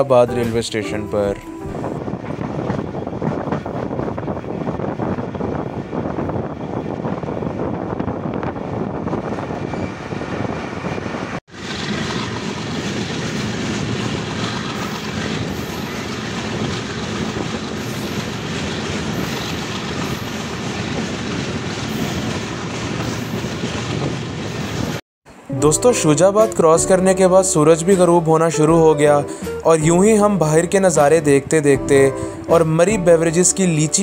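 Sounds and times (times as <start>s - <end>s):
train wheels rumbling on rails: 1.6s - 25.0s
rushing air: 1.6s - 25.4s.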